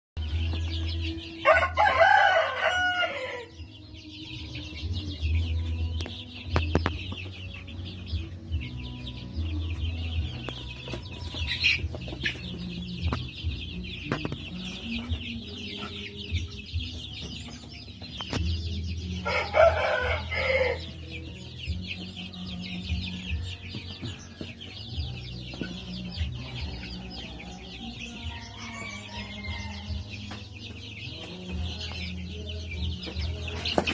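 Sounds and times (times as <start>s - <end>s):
chickens clucking: 0.2s - 33.9s
rooster crowing: 1.4s - 3.5s, 19.2s - 20.8s.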